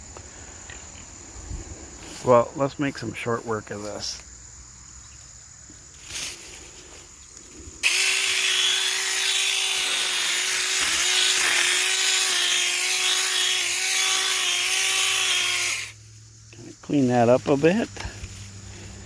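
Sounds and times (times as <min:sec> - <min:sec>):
electric mini chainsaw running: 0:07.8 - 0:16.0.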